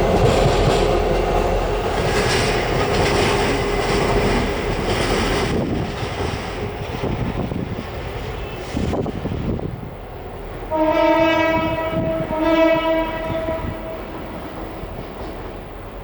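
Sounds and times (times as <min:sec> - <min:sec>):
diesel locomotives running: 0:00.0 - 0:16.0
locomotive horn blasts: 0:10.7 - 0:15.0.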